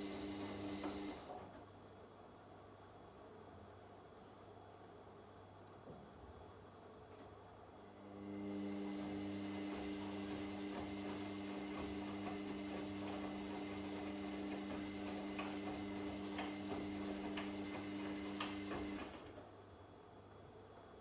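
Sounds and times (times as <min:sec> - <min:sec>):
washing machine motor hum: 0:00.0 - 0:01.6, 0:07.9 - 0:19.7.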